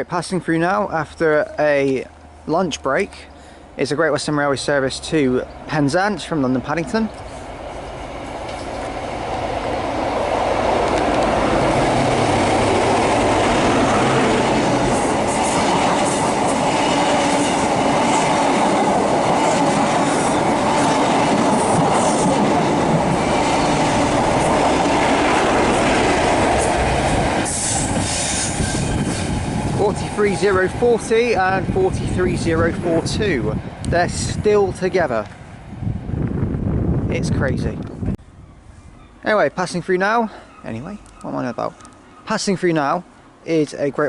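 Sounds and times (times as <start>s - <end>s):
diesel locomotive engine running: 0.8s - 37.0s
train wheels clattering and squealing: 27.4s - 29.4s.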